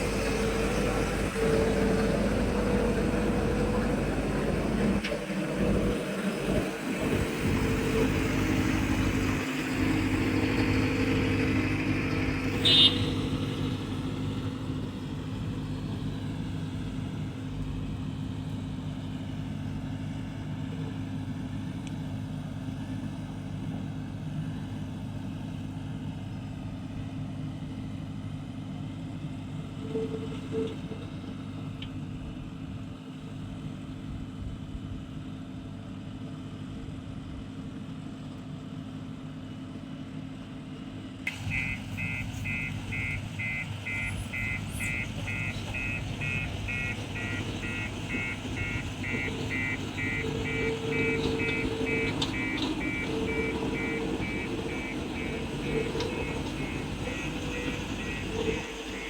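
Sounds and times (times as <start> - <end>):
diesel engine running: 0.0 - 35.2, 39.7 - 59.0
rapid electronic beeping: 41.5 - 59.0.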